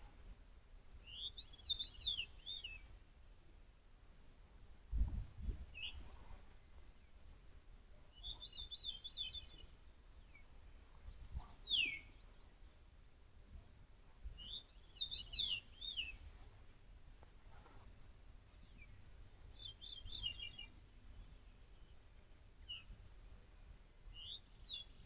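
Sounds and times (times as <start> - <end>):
songbirds calling: 1.0 - 2.9, 8.1 - 13.0, 14.4 - 16.4, 18.4 - 23.0, 24.1 - 25.0.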